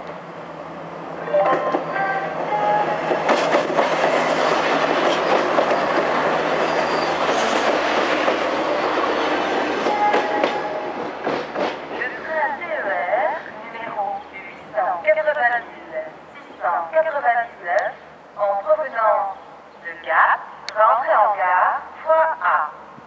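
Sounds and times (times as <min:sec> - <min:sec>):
railcar engine running: 0:00.0 - 0:16.8
brief high tones: 0:01.3 - 0:02.3.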